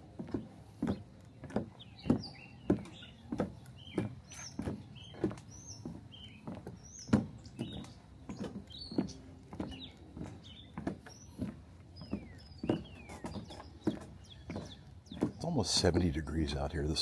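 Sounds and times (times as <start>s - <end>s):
walking footsteps: 0.0s - 17.0s
small bird chirping: 0.8s - 17.0s.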